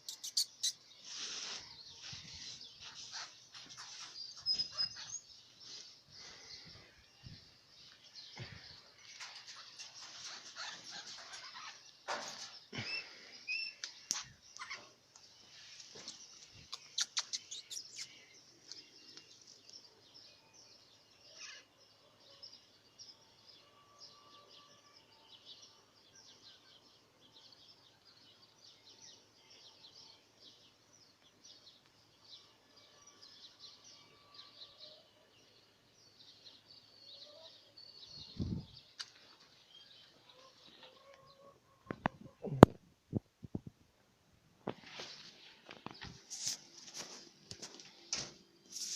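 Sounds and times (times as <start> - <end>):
parrots chirping: 0.0 - 0.8, 9.2 - 11.8, 16.7 - 18.1.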